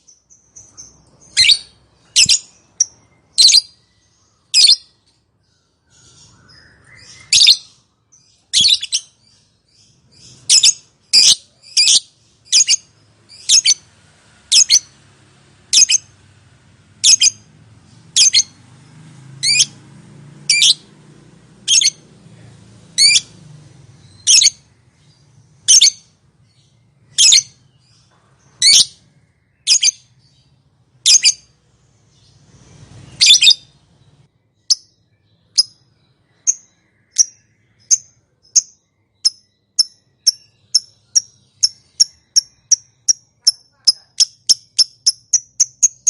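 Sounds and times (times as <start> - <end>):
lovebird sharp chirps: 0.0 - 5.0, 5.9 - 13.9, 14.5 - 15.0, 15.7 - 16.1, 17.0 - 18.6, 19.4 - 19.8, 20.5 - 20.8, 21.7 - 22.0, 23.0 - 23.3, 24.0 - 29.0, 29.6 - 30.4, 31.0 - 31.5, 33.0 - 33.8, 34.6 - 46.0
lovebird shrill calls: 0.6 - 3.8, 8.5 - 9.1, 10.2 - 13.8, 14.5 - 14.9, 15.7 - 16.1, 17.0 - 17.4, 18.2 - 18.6, 19.4 - 19.7, 20.5 - 20.8, 21.7 - 22.0, 23.0 - 23.3, 24.0 - 24.6, 27.1 - 27.6, 29.7 - 30.0, 31.0 - 31.5, 33.2 - 33.7.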